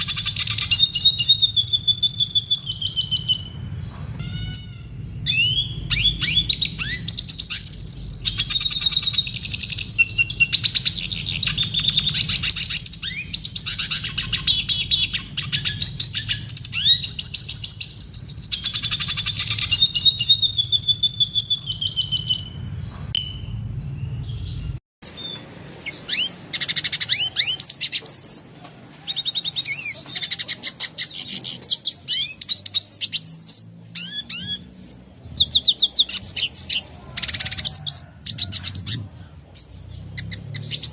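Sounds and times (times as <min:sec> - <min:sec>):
bird twittering song: 0:00.0 - 0:40.9.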